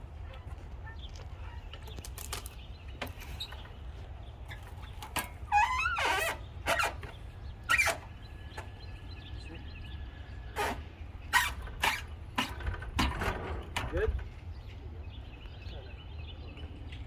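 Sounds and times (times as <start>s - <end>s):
creaky squeak: 5.4s - 8.1s, 10.5s - 12.8s.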